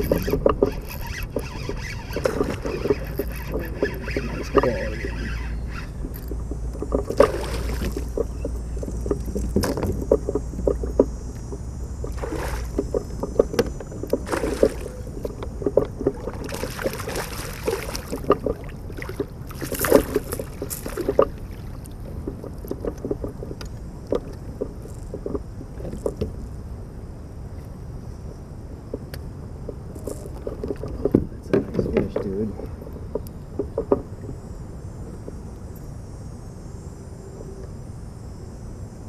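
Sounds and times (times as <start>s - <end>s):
knocks and clicks against hull: 0.0s - 26.6s, 27.6s - 34.4s
water splashing around kayak: 0.0s - 26.8s.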